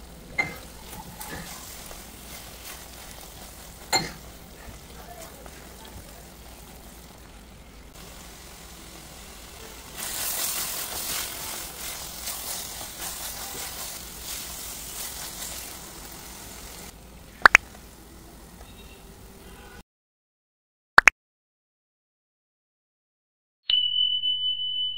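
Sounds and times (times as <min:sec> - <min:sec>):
spatula stirring and scraping: 0:00.0 - 0:07.3, 0:09.3 - 0:16.9
curry sizzling in a frying pan: 0:00.0 - 0:19.4.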